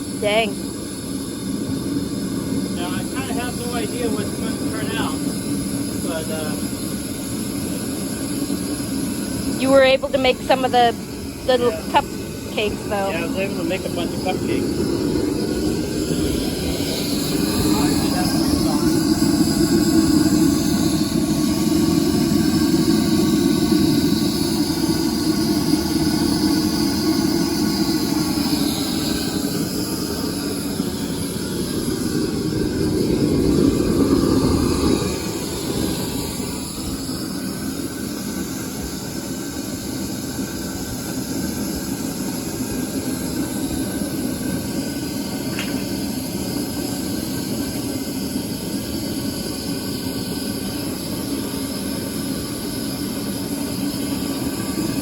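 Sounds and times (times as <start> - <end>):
propane torch rushing rumble: 0.0 - 55.0.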